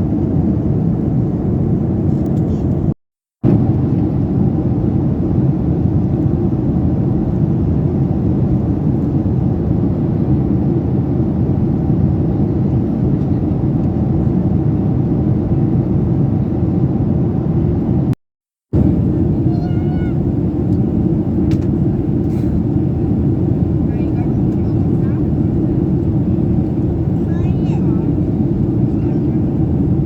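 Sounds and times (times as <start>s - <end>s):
airplane cabin engine rumble: 0.0s - 30.0s.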